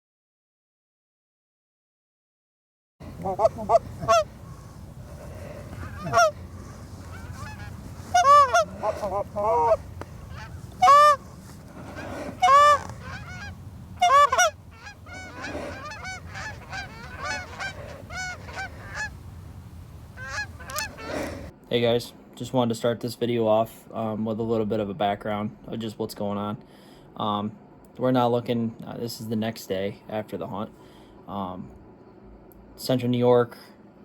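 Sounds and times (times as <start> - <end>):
geese honking: 3.0 - 21.5.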